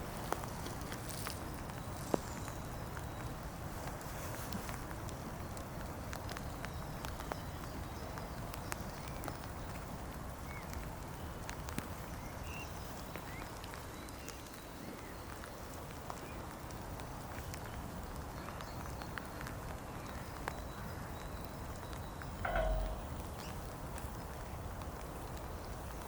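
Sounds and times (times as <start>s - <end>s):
light clicks and ticks: 22.2s - 24.6s
steady low rumble: 22.3s - 24.0s.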